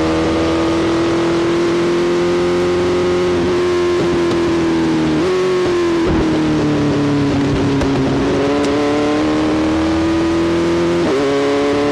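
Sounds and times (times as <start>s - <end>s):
motorcycle engine running hard: 0.0s - 11.9s.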